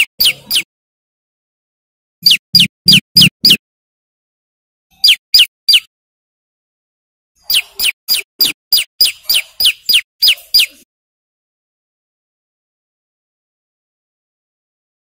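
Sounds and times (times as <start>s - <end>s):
bird singing sharp chirps: 0.0s - 0.7s, 2.2s - 3.6s, 4.9s - 5.9s, 7.4s - 10.8s.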